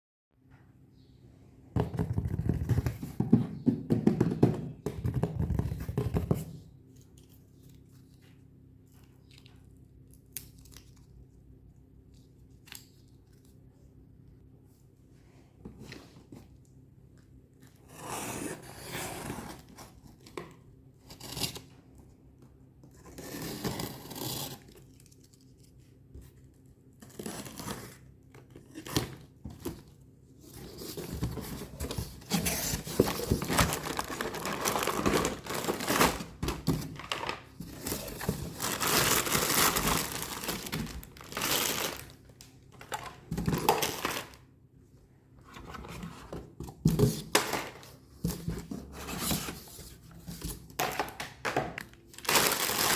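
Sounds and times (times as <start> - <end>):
toy packaging tearing and crinkling: 30.7 - 42.2, 43.5 - 44.4, 51.8 - 52.9.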